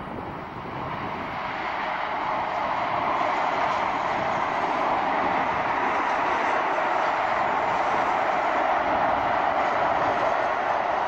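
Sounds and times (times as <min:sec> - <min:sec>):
passenger train passing at speed: 0:00.0 - 0:11.0.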